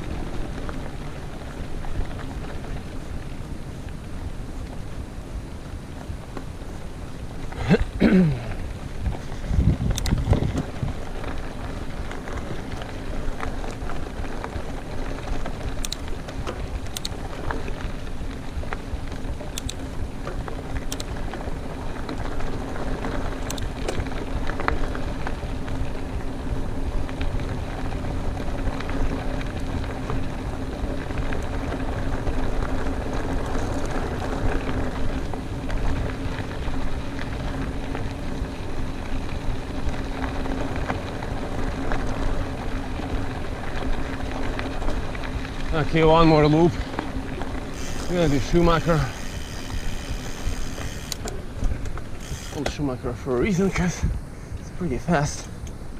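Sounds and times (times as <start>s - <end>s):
wind on microphone: 0.0s - 11.8s
bike tyres on dirt trail: 0.0s - 55.9s
low hum: 0.0s - 55.9s
sharp clicks: 19.6s - 19.8s.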